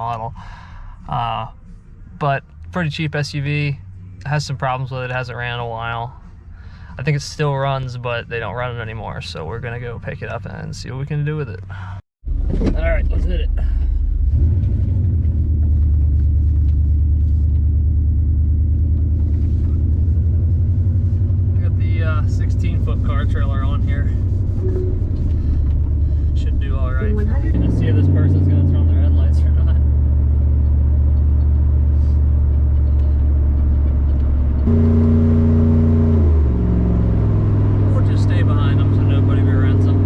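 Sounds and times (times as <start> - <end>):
vehicle engine and road noise: 0.0 - 40.0.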